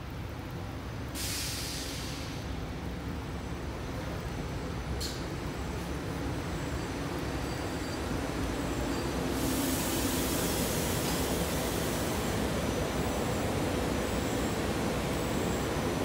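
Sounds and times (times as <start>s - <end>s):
air hiss: 1.1s - 2.5s, 9.2s - 15.9s
train rumbling to a stop: 1.1s - 2.8s, 3.6s - 16.0s.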